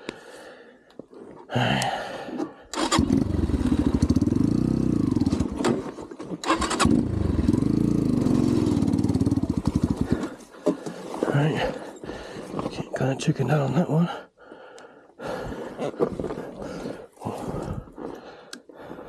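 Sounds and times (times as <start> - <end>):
dirt bike engine starting and revving: 2.7 - 10.4.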